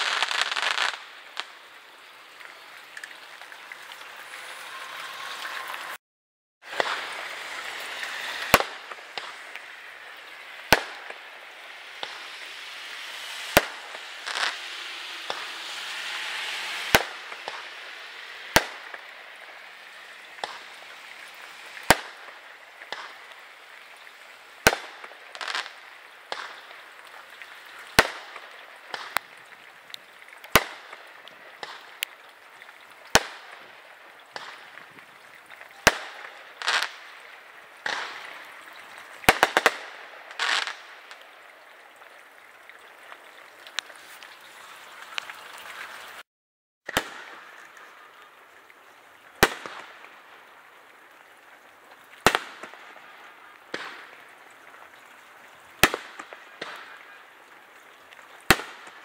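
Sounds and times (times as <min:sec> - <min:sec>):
firework bangs: 0:00.0 - 0:01.6, 0:06.7 - 0:23.6, 0:24.6 - 0:26.8, 0:30.5 - 0:32.0, 0:34.3 - 0:34.9, 0:35.8 - 0:37.2, 0:37.8 - 0:41.2, 0:46.9 - 0:47.5, 0:49.4 - 0:50.2, 0:52.2 - 0:53.1, 0:53.7 - 0:54.2, 0:55.8 - 0:57.0, 0:58.5 - 0:59.0
firework pops and crackles: 0:00.0 - 0:06.0, 0:06.7 - 0:44.5, 0:46.9 - 0:48.0, 0:48.8 - 0:59.0
steady hiss: 0:00.0 - 0:06.0, 0:06.7 - 0:46.2, 0:46.9 - 0:59.0.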